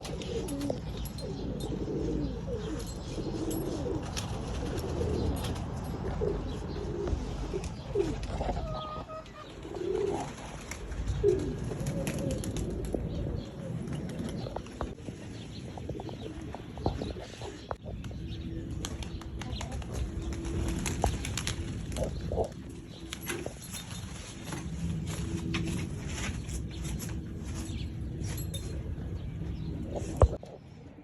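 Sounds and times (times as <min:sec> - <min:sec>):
pigeons cooing: 0:00.0 - 0:31.0
wing flaps: 0:16.8 - 0:28.9.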